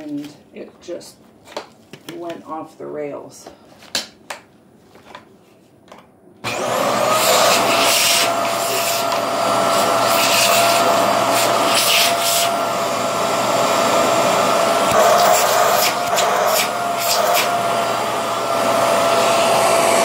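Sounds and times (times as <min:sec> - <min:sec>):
vacuum cleaner running: 0:06.4 - 0:20.0.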